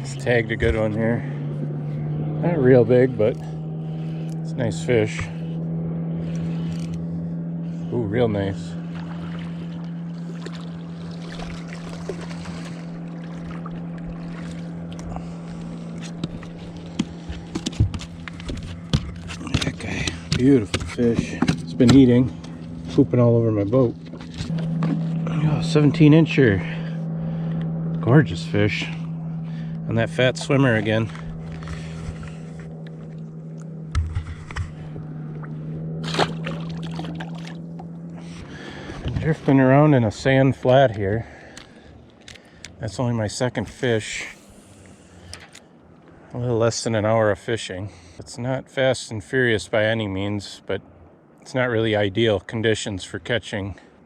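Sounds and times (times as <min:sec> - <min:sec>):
boat engine hum: 0:00.0 - 0:54.0
knocks and clicks handling fish: 0:14.9 - 0:23.0, 0:24.0 - 0:25.2, 0:30.8 - 0:38.0.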